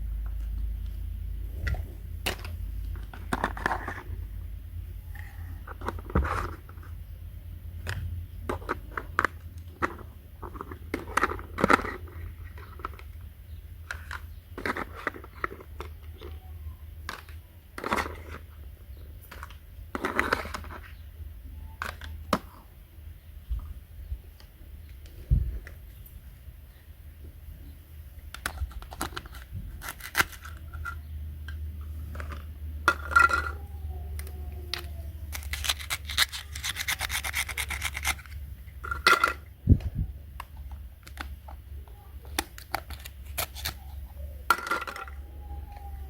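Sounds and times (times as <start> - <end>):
low steady hum: 0.0 - 46.0
small objects clicking and scraping: 1.6 - 4.3, 5.1 - 7.0, 7.8 - 21.0, 28.2 - 45.9.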